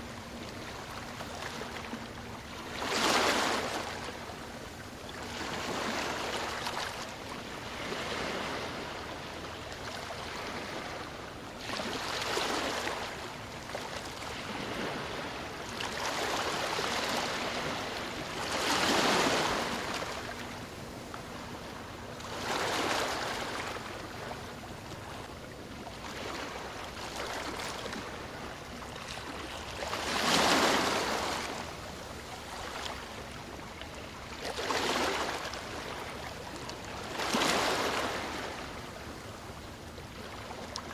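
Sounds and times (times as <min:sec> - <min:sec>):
ocean waves washing on shore: 0:00.0 - 0:40.9.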